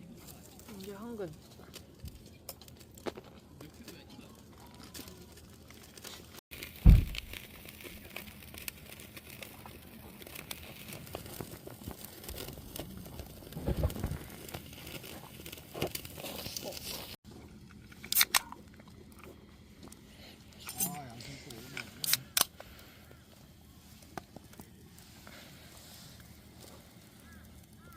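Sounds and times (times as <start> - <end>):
material crinkling and rustling: 0.1 - 17.2
loud thump: 6.8 - 7.4.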